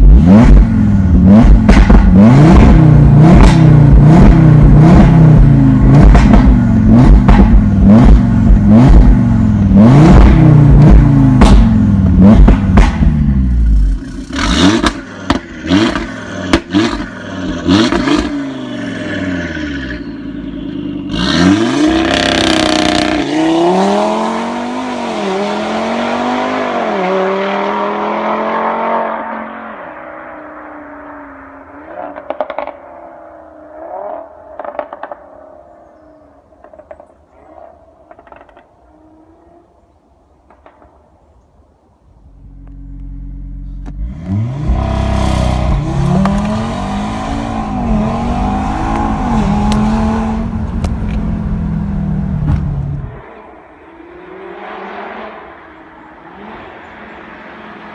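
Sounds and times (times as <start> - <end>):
car engine revving hard: 0.0 - 13.5, 44.0 - 53.2
car accelerating: 0.0 - 30.2, 42.5 - 53.2
exhaust pops and crackles: 0.4 - 9.2, 10.1 - 13.3, 44.6 - 53.2.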